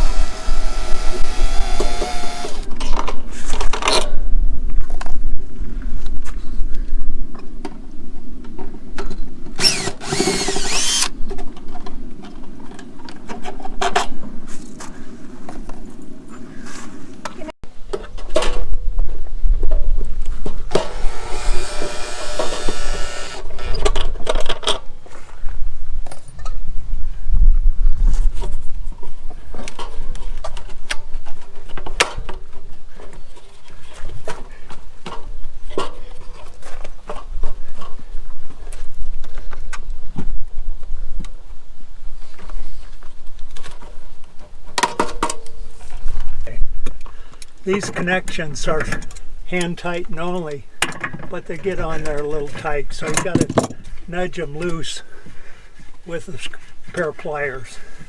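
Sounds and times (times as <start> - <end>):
electric drill whining: 0.0 - 2.7, 9.6 - 11.1, 20.7 - 23.7
hand tools and metal fittings clicking: 20.7 - 23.9.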